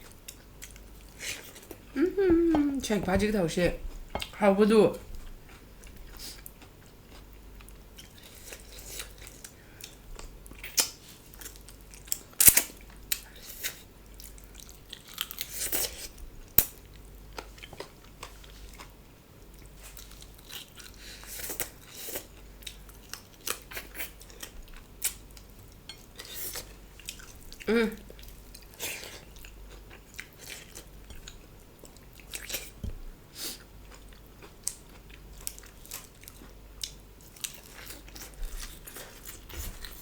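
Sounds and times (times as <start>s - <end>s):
close chewing and biting: 33.8s - 40.0s.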